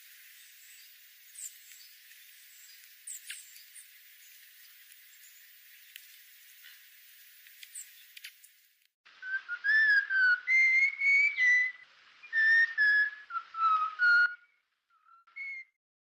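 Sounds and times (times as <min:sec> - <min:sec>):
whistled notes: 0:09.2 - 0:15.8.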